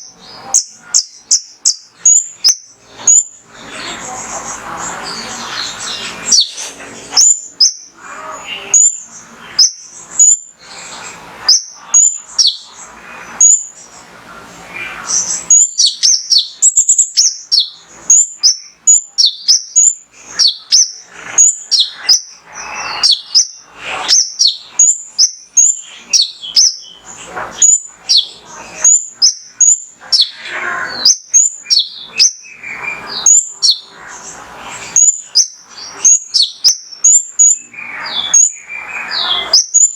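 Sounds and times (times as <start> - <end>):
bird singing high chirps: 0.0 - 39.9.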